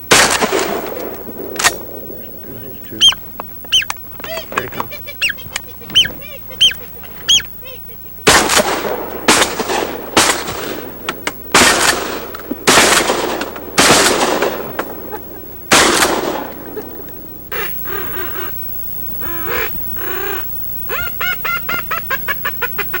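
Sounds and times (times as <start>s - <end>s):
shotgun blasts echoing: 0.1s - 3.1s, 8.3s - 15.1s, 15.7s - 17.0s
duck calls: 1.6s - 8.5s, 17.5s - 23.0s.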